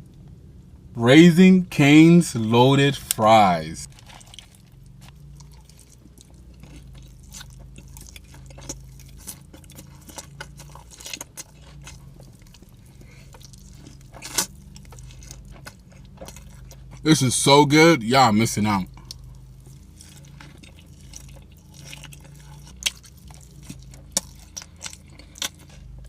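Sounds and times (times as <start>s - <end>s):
low steady hum: 0.0s - 26.0s
chewing and wet mouth sounds: 3.8s - 17.2s, 18.6s - 26.0s.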